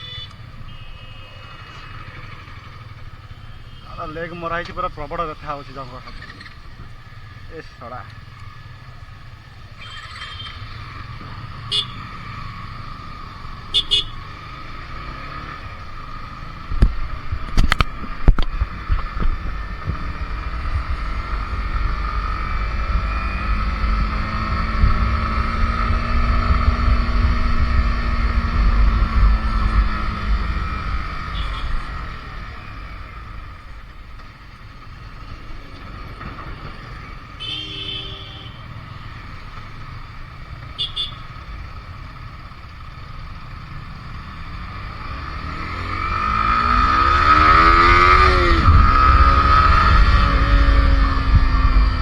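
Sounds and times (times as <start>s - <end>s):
motorcycle engine humming: 0.0s - 52.0s
traffic noise: 0.0s - 52.0s
wind rumble on microphone: 16.7s - 23.5s, 24.2s - 31.0s, 47.5s - 52.0s.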